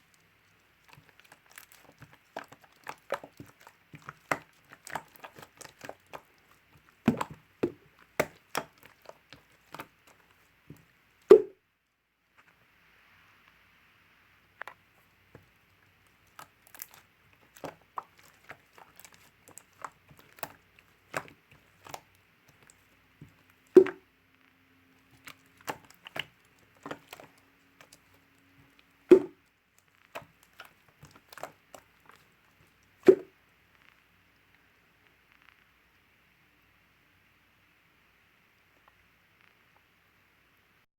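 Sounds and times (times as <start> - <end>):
slime clicking and crackling: 0.0 - 11.5, 14.6 - 24.0, 25.0 - 33.3
slime popping: 0.0 - 11.6, 14.6 - 24.1, 25.0 - 33.3.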